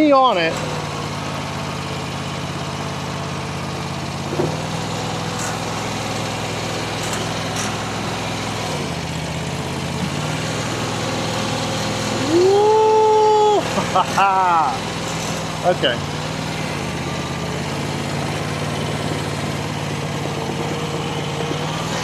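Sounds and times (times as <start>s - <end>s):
skid steer engine running: 0.0s - 22.0s
loud high tone: 12.1s - 14.8s.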